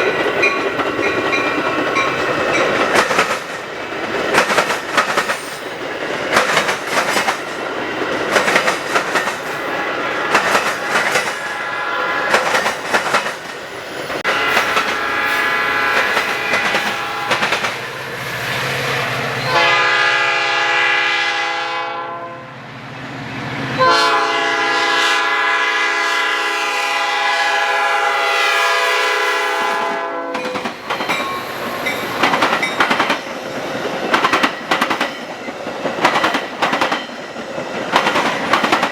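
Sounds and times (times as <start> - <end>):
train wheels clicking over rails: 0.0 - 19.5, 30.3 - 38.9
train air horn blasts: 11.4 - 12.3, 14.2 - 17.7, 19.4 - 22.6, 23.8 - 30.5.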